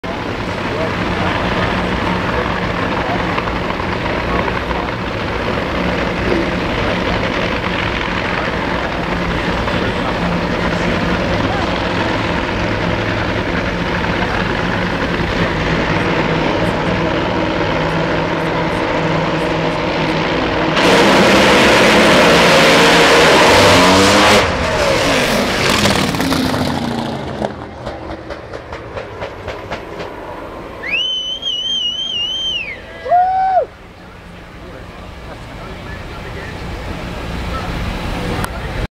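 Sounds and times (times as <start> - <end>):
drag racing car engine: 0.0 - 32.9, 33.6 - 38.9
engine crackling: 0.0 - 38.9
high warbling whistle: 30.7 - 33.7.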